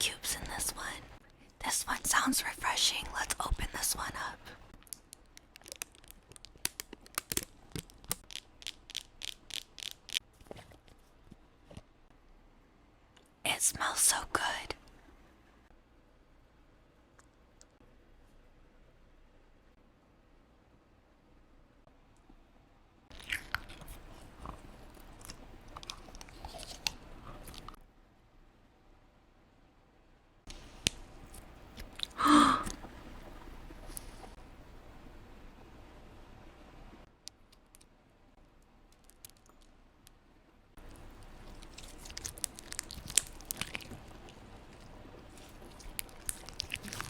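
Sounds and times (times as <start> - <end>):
slime squishing by hand: 4.8 - 11.0, 40.8 - 47.0.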